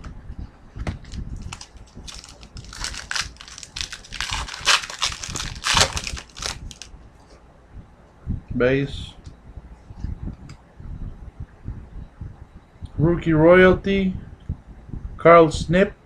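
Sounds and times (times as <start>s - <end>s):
cards clicking and rustling: 1.0s - 6.9s
foil wrapper crinkling: 1.0s - 6.9s.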